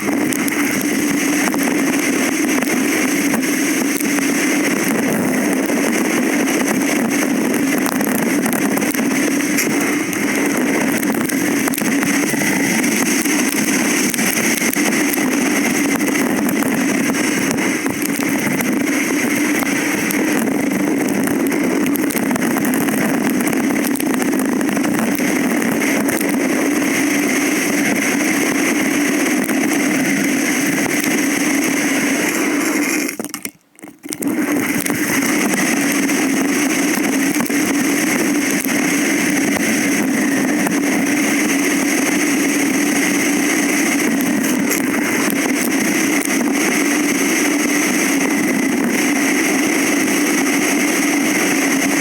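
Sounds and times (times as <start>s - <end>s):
vehicle engine running: 0.0s - 32.8s.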